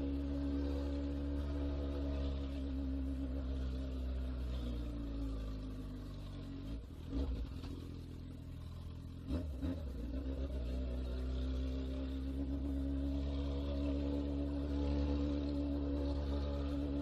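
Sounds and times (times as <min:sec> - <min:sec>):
motorcycle engine riding: 0:00.0 - 0:17.0.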